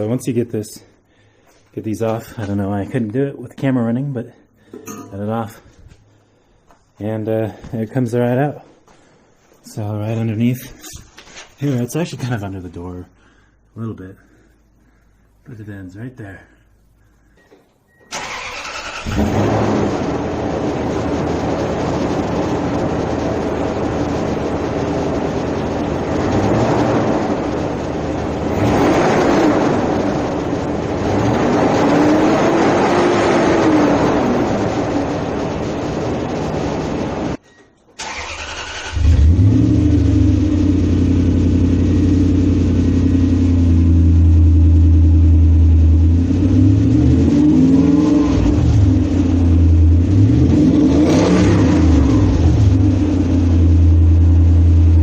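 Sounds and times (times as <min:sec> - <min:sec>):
deep engine exhaust revving: 0:19.0 - 0:37.4, 0:39.0 - 0:55.0.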